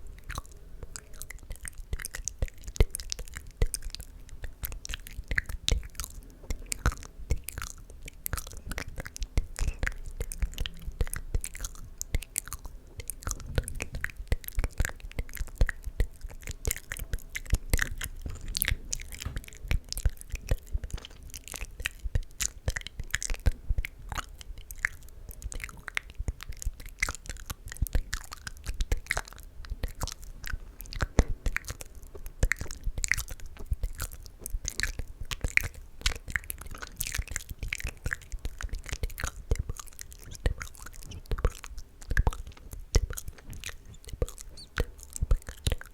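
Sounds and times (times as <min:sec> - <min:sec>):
wet mouth clicks and smacks: 0:00.1 - 0:45.9.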